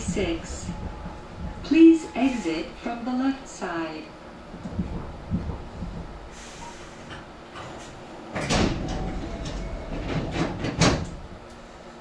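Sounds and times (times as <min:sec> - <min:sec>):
train car low hum: 0:00.0 - 0:12.0
compressed air hiss: 0:06.3 - 0:07.1.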